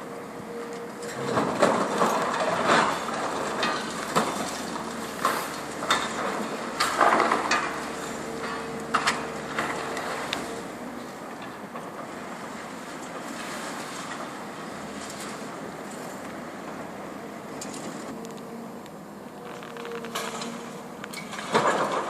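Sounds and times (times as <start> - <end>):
excavator humming: 0.0 - 22.0
falling concrete chunks: 21.2 - 22.0.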